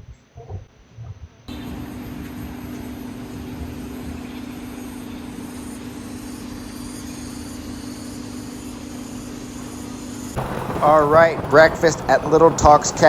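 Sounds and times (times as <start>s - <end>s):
scooter engine humming: 1.5s - 13.0s
wind rumble on microphone: 10.4s - 13.0s.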